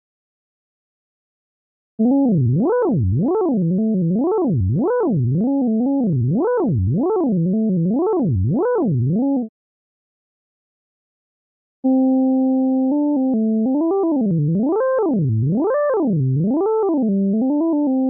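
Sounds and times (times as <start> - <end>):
ring-modulated synthesizer tone: 2.0 - 9.5, 11.9 - 18.0.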